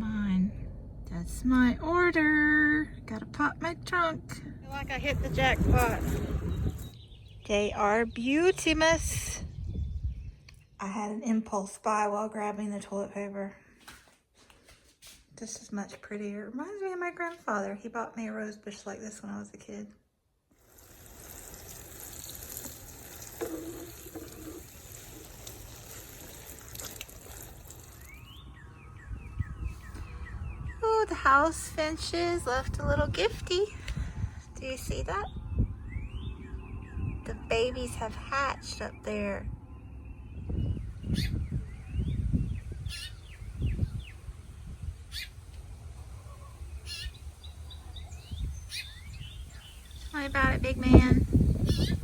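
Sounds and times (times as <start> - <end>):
microphone rumbles: 4.5 - 7.0, 48.0 - 52.0
water running: 4.7 - 6.9, 20.6 - 28.3
small birds chirping: 4.7 - 10.8, 20.7 - 34.0, 34.6 - 52.0
finches chirping: 34.9 - 44.2, 44.8 - 45.4, 46.4 - 52.0.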